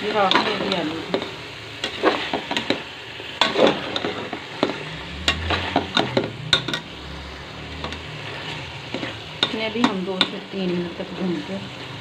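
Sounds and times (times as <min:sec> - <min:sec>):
potatoes sizzling in hot fat: 0:00.0 - 0:12.0
metal spoon scraping a pot: 0:03.4 - 0:07.0, 0:07.8 - 0:10.4.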